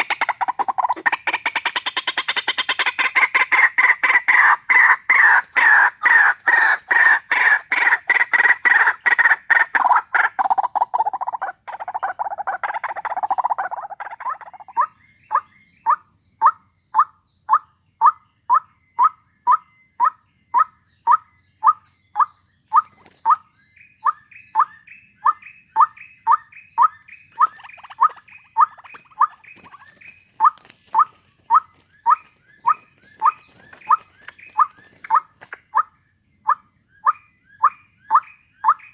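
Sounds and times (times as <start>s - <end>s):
waterhen calling: 0.0s - 14.9s, 26.8s - 35.9s.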